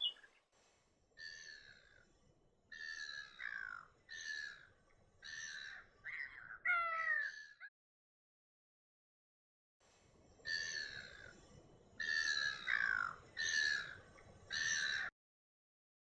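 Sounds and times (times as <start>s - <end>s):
bird giving harsh calls: 0.0s - 0.2s.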